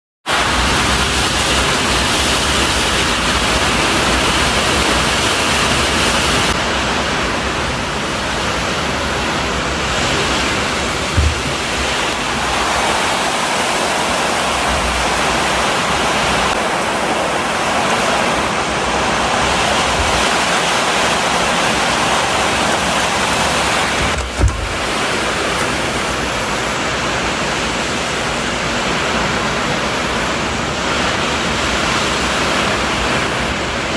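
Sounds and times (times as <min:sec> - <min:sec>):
strong wind with rain: 0:00.2 - 0:33.9
brief low thumps: 0:11.0 - 0:12.2.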